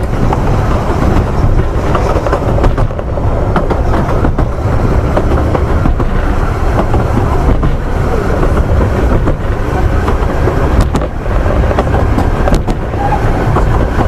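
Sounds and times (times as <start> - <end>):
track clicks and knocks: 0.0 - 14.0
train wheels rumbling on rails: 0.0 - 14.0.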